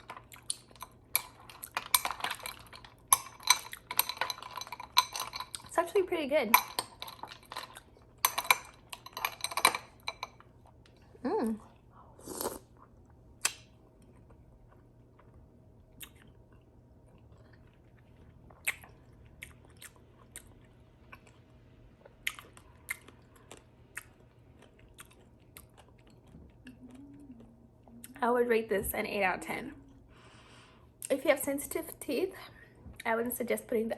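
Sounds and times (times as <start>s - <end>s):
person humming: 11.2s - 11.7s, 26.7s - 28.1s
person chewing with clicks: 12.5s - 21.4s, 22.0s - 28.2s.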